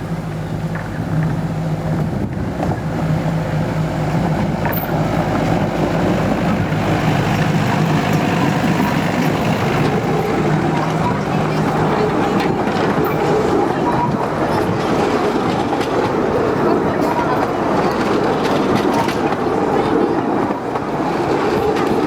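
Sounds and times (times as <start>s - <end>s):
train engine hum: 0.0s - 22.0s
train rumbling running noise: 0.0s - 22.0s.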